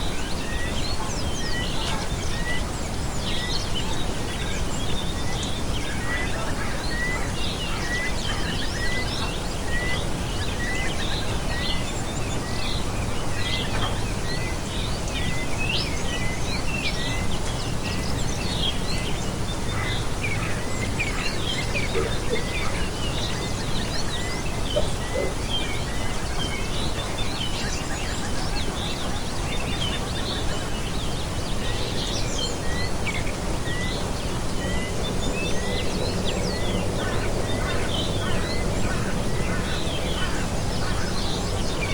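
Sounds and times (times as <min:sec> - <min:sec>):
birds chirping and calling: 0:00.0 - 0:41.9
steady rushing noise: 0:00.0 - 0:41.9.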